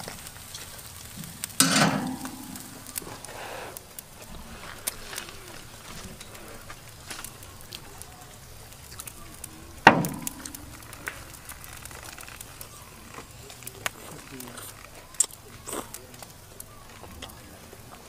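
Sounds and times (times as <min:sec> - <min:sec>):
crunching of crisp fried food: 0:02.2 - 0:18.0
loud thump: 0:09.9 - 0:10.6.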